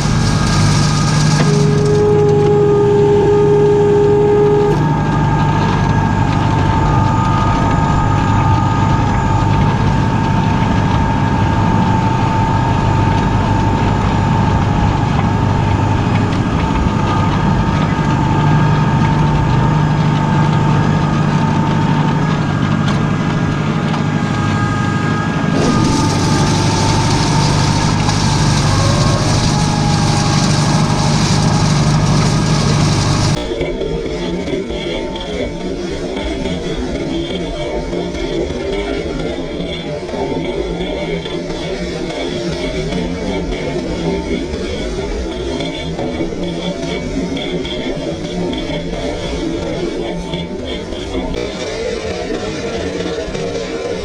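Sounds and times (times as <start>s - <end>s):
tractor engine humming: 0.0s - 33.6s
high hiss: 25.6s - 33.5s.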